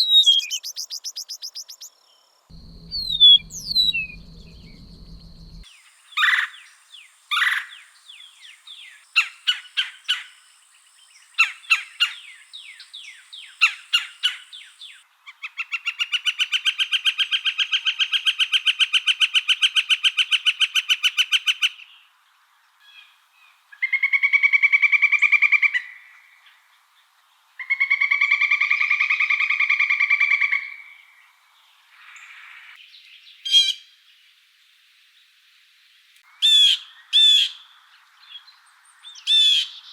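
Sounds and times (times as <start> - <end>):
bird trilling: 0.0 - 1.9, 2.5 - 5.6
bird chirps: 0.0 - 10.4
faint high insect-like tone: 0.0 - 15.4, 21.8 - 24.3, 25.1 - 39.9
buzzy bird trills: 2.5 - 5.6.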